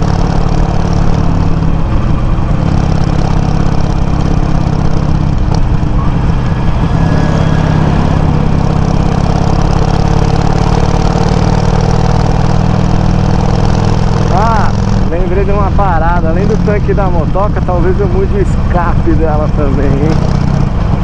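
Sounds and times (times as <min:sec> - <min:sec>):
motorcycle engine idling: 0:00.0 - 0:06.9.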